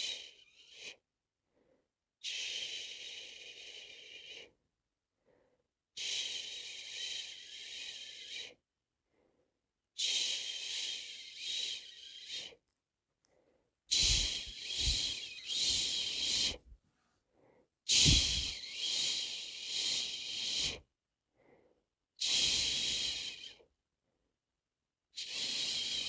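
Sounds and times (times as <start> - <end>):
breath puff on microphone: 14.0 - 16.8, 17.9 - 18.6.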